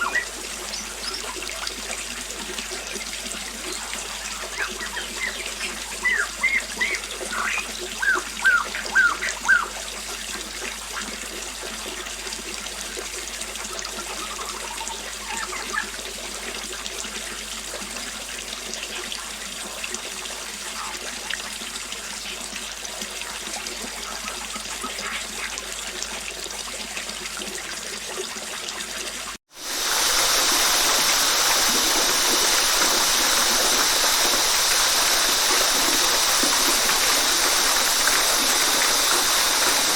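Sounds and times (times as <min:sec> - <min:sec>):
waterfall rushing: 0:00.0 - 0:09.8, 0:29.5 - 0:39.9
water trickling and splashing: 0:00.0 - 0:39.9.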